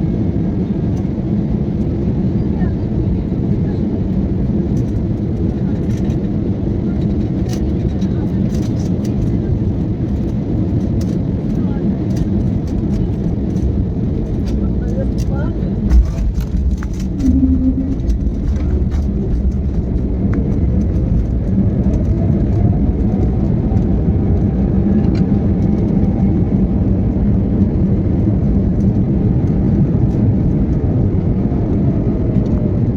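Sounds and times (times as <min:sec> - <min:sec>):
aeroplane rumble: 0:00.0 - 0:32.9
faint falling whine: 0:17.0 - 0:19.8.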